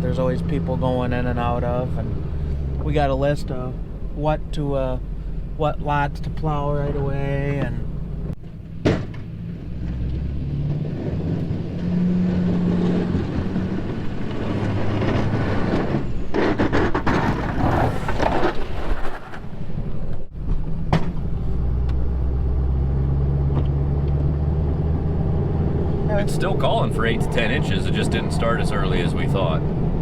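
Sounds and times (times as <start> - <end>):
rough rushing noise: 10.2 - 19.8.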